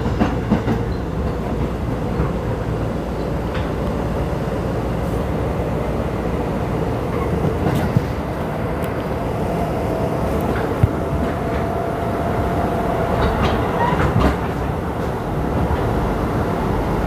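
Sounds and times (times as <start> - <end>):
train wheels and motors rumbling: 0.0 - 17.0.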